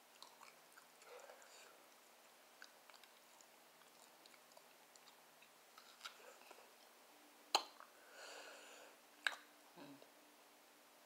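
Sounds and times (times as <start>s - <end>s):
chewing ribs: 0.0s - 6.9s
wet mouth clicks: 7.5s - 7.9s, 9.2s - 9.5s.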